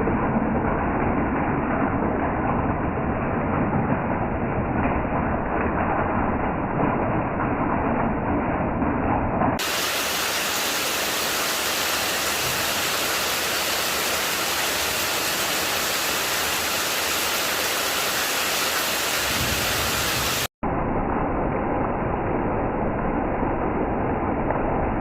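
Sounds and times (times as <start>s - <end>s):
hiss of falling water: 9.6s - 20.5s.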